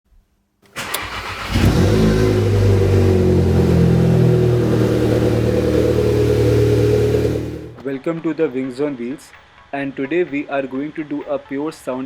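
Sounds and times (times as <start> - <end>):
car engine starting and running: 0.7 - 7.8.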